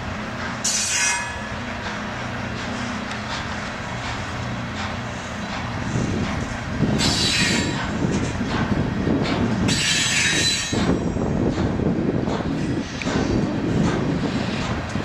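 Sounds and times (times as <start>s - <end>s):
freight train rumbling past: 0.0s - 15.0s
steel wheels squealing: 0.6s - 1.7s, 6.9s - 8.0s, 9.6s - 11.3s.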